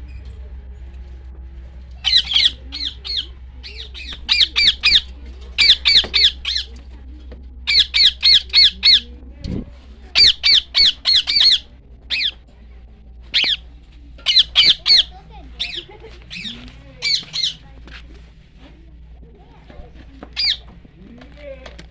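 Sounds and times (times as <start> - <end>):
bird squawking: 1.9 - 6.9, 7.7 - 9.2, 10.1 - 12.5, 13.2 - 17.8, 20.0 - 21.9.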